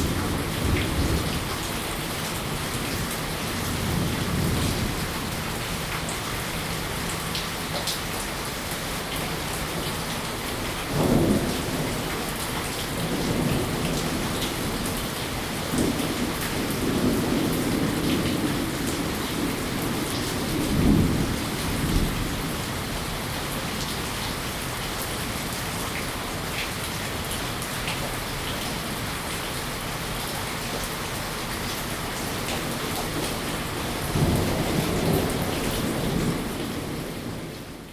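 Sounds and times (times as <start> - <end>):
steady rain: 0.0 - 37.9
thunder rumbling: 10.9 - 23.0, 32.6 - 37.9.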